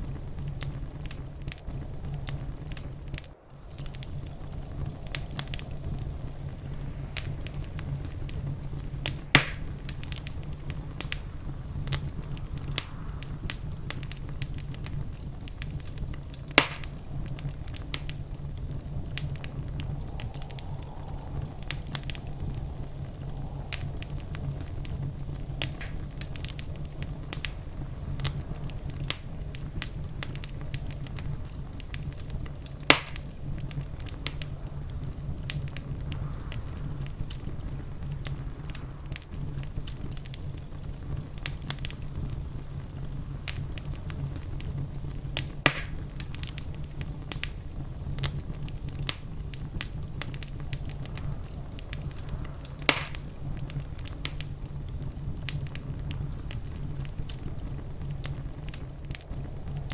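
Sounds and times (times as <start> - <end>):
fireplace fire crackling: 0.0 - 59.9.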